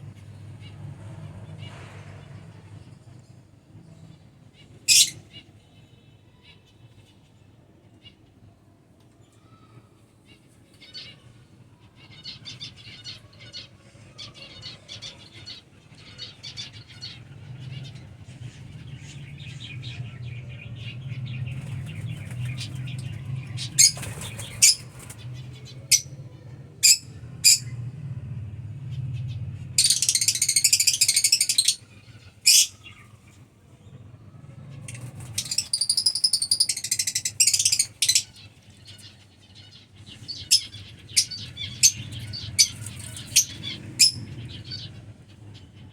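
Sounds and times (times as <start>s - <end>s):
lovebirds chirping: 4.7s - 5.4s, 12.1s - 27.8s, 29.0s - 34.1s, 34.8s - 45.3s
shrill bird chattering: 4.9s - 5.2s, 29.8s - 33.2s, 34.9s - 39.0s
wing flutters: 21.5s - 25.5s.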